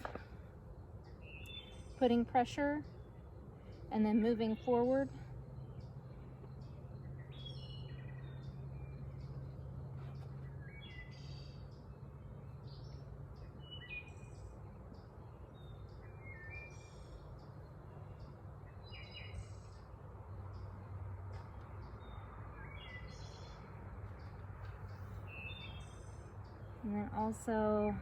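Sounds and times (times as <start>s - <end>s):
birds chirping and singing: 0.9s - 19.9s.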